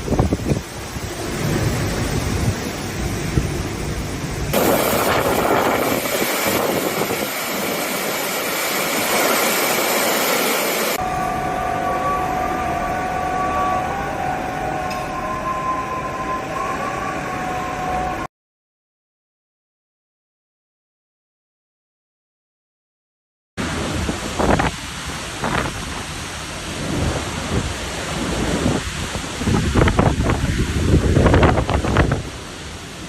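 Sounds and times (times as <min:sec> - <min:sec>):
strong wind rushing: 0:00.0 - 0:18.2, 0:23.6 - 0:33.0
high whistling tones: 0:11.0 - 0:18.3.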